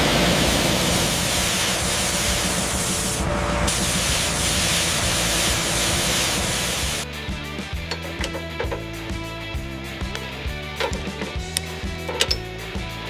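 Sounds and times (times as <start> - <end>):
pressurised spraying hiss: 0.0 - 7.0.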